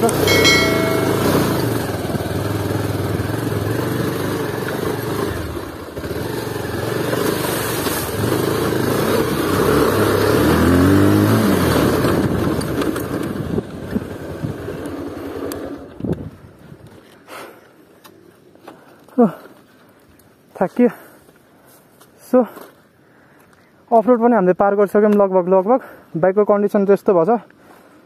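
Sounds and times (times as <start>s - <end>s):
motorcycle engine revving: 0.0s - 15.9s.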